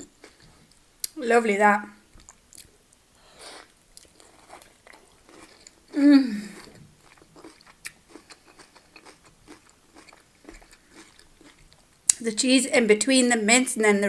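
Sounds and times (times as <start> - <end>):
person chewing food: 0.0 - 1.2, 2.2 - 12.2
person humming mmm: 5.9 - 6.8.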